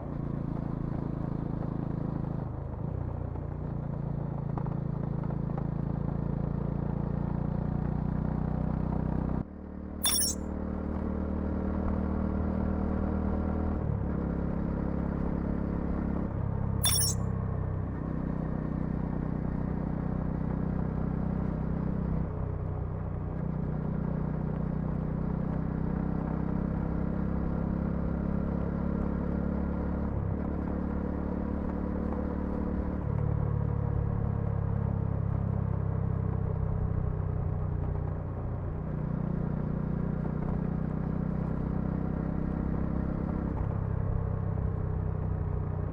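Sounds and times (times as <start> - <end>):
sharp click: 10.0 - 10.4, 16.8 - 17.2.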